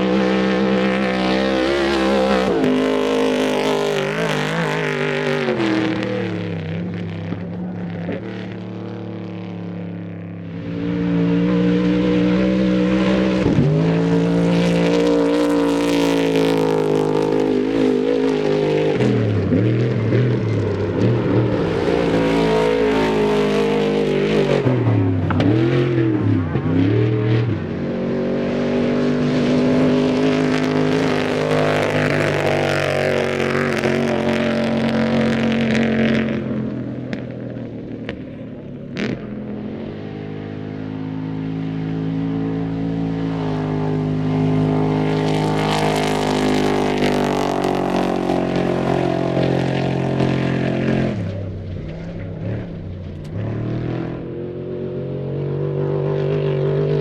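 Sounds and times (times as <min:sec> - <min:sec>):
truck engines revving: 0:00.0 - 0:57.0.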